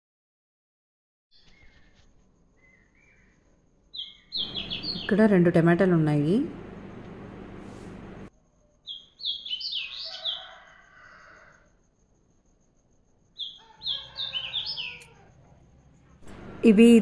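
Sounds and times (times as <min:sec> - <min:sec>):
songbird chirping: 0:02.6 - 0:10.6, 0:13.4 - 0:15.2.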